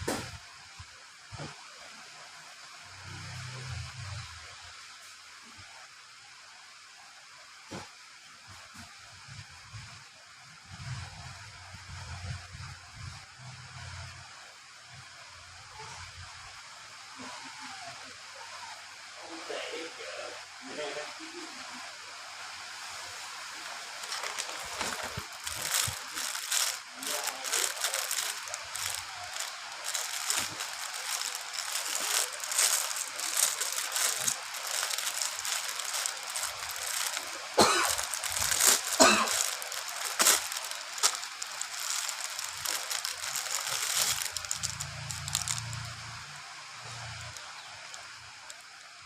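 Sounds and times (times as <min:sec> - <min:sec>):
rain falling: 0:00.0 - 0:06.9, 0:21.2 - 0:49.0.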